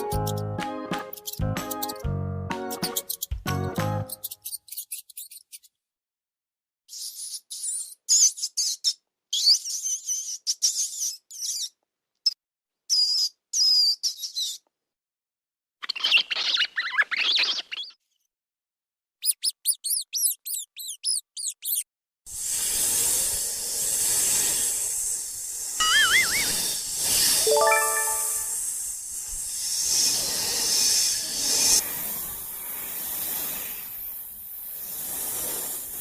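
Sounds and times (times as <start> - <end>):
even hiss: 22.3 - 36.0
high-pitched animal chirps: 25.8 - 26.6.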